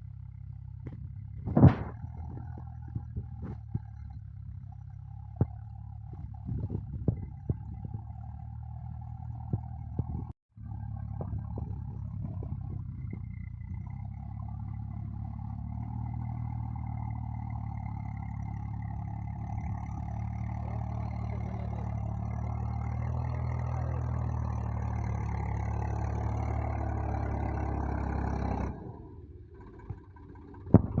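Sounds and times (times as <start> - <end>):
engine knocks: 0.0 - 31.0
tractor diesel engine high revs: 11.9 - 31.0.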